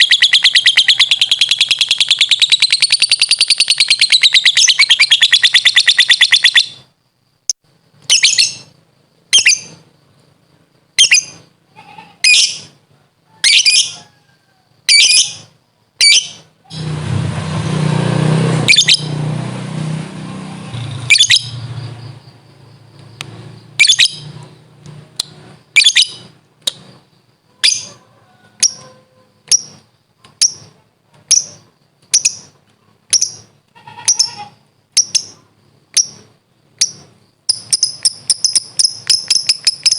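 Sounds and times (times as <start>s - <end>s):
bird chattering trill: 0.0s - 6.9s, 8.1s - 8.7s, 9.3s - 9.8s, 11.0s - 12.8s, 13.4s - 14.1s, 14.9s - 16.9s, 18.7s - 19.1s, 21.0s - 22.9s, 23.6s - 39.9s
sharp high bird chirps: 0.0s - 9.9s, 11.0s - 12.8s, 13.4s - 14.1s, 14.9s - 17.0s, 18.6s - 19.3s, 20.5s - 39.9s.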